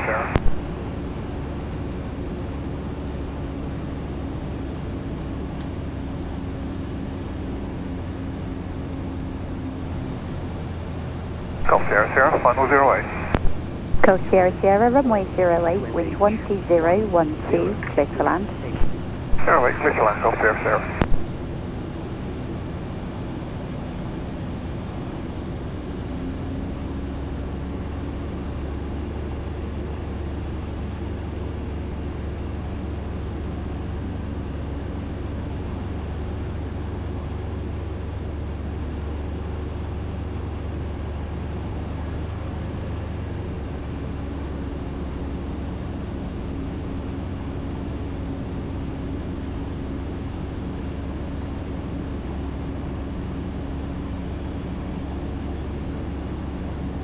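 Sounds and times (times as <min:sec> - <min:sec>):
light aircraft engine droning: 0:00.0 - 0:57.0
airflow noise: 0:11.6 - 0:21.5.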